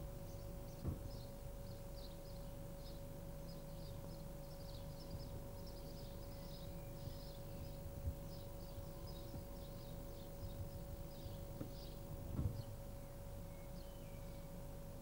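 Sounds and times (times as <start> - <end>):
faint steady hum: 0.0 - 15.0
small birds chirping: 0.0 - 15.0
soft knock: 0.8 - 1.1, 11.6 - 12.7.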